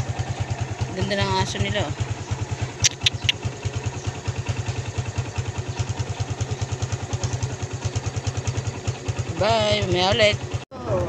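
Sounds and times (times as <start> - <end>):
motorcycle engine idling: 0.0 - 11.0
short sharp clicks: 2.8 - 3.4.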